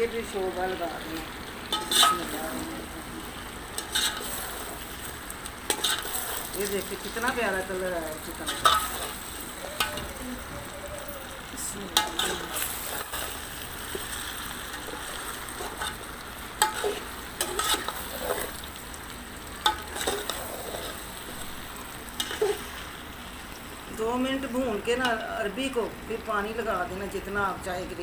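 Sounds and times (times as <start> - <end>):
food sizzling in metal pot: 0.0 - 28.0.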